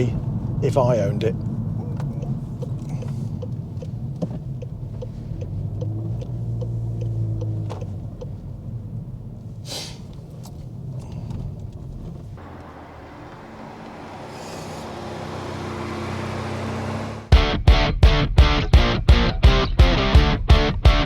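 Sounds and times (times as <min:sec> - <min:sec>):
car engine and road noise: 0:00.0 - 0:21.0
light regular ticking: 0:00.1 - 0:09.5.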